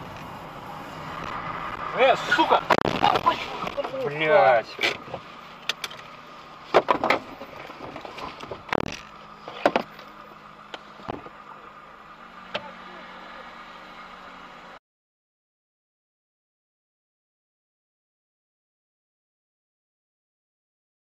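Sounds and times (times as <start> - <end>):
car engine idling: 0.0 - 14.8
sharp clicks and knocks: 6.7 - 10.1.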